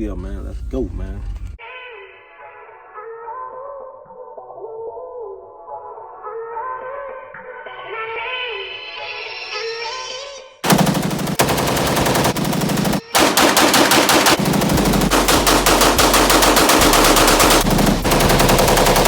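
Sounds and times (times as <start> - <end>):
rapid automatic gunfire: 10.6 - 19.0.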